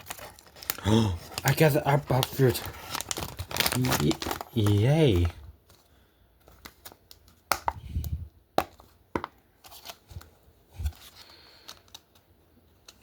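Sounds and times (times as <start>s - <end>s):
packaging rustle: 0.0s - 7.6s.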